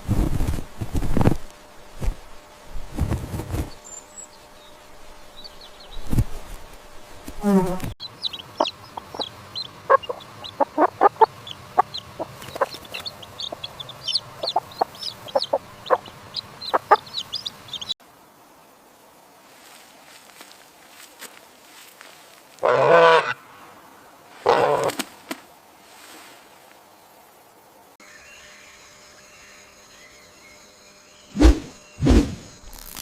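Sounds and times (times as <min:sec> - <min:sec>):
chickens clucking: 0:08.0 - 0:18.0.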